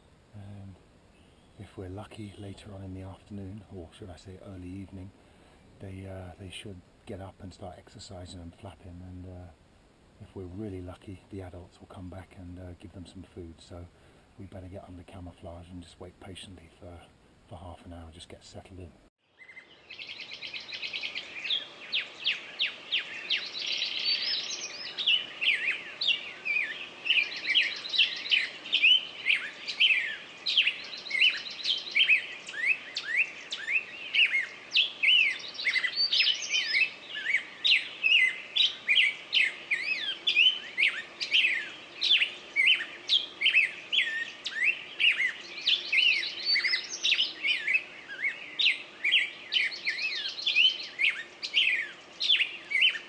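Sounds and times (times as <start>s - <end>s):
birds chirping: 0.0s - 53.0s
rapid bird trills: 19.2s - 53.0s.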